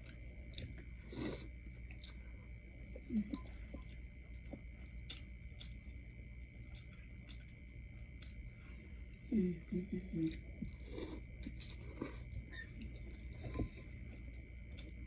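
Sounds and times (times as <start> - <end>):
wet chewing and mouth clicks: 0.0 - 2.3, 3.6 - 8.6, 10.2 - 15.0
faint high-pitched hum: 0.0 - 15.0
person humming: 9.3 - 10.4.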